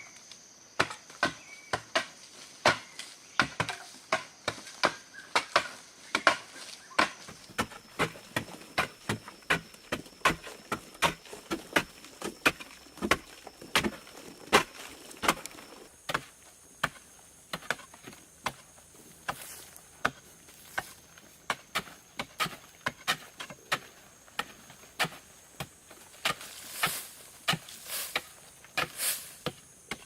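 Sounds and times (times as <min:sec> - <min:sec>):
chopping strikes on wood: 0:00.8 - 0:17.8.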